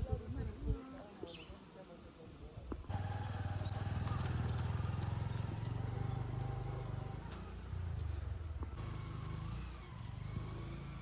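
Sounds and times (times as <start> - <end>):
small engine humming: 2.9 - 11.0.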